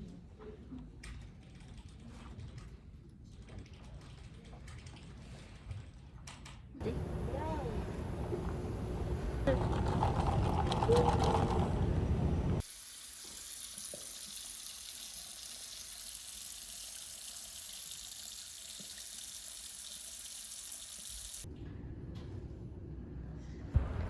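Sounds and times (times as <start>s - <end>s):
running water hiss: 11.0s - 21.5s.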